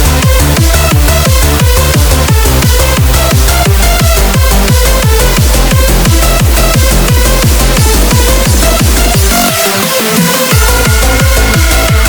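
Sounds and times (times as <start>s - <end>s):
fast kick drum: 0.0s - 12.0s
sustained synth chords: 10.5s - 12.0s.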